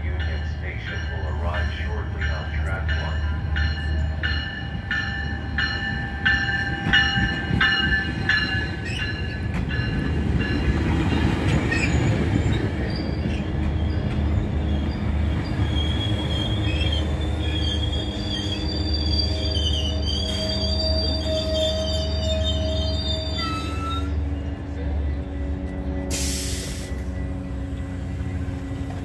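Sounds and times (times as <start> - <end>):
train rumbling past: 0.0 - 29.0
high wheel squeal: 11.7 - 24.6.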